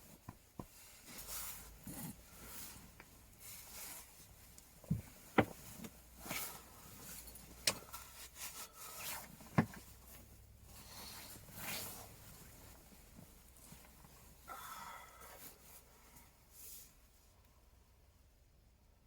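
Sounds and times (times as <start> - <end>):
soft rustling: 0.0 - 14.5.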